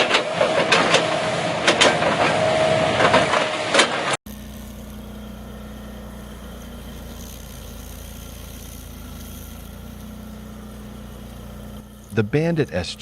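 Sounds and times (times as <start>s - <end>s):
stump grinder engine idling: 4.3s - 13.0s.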